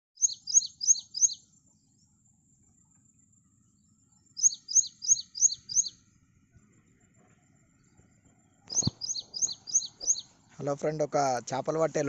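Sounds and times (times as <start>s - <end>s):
bird calling descending notes: 8.6s - 10.4s.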